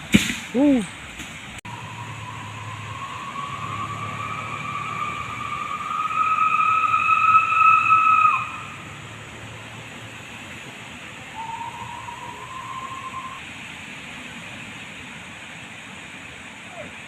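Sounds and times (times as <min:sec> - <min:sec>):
long rising whistled note: 0:01.7 - 0:08.8, 0:11.3 - 0:13.5.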